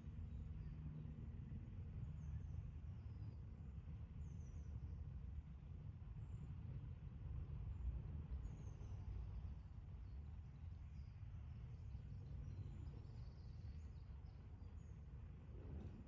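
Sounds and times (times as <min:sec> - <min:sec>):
steady low rumble: 0:05.3 - 0:16.0.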